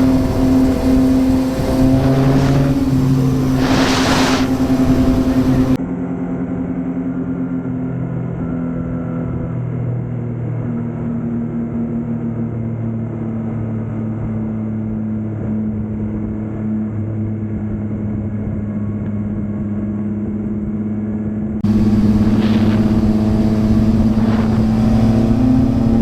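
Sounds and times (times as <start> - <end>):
motorcycle engine running: 0.0 - 5.8, 21.6 - 26.0.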